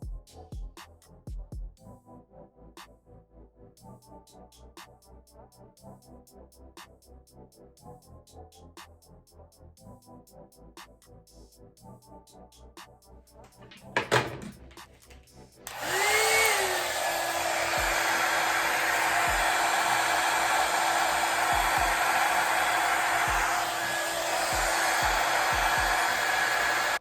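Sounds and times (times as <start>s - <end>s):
hair dryer motor whining: 13.6s - 14.8s, 15.7s - 27.0s.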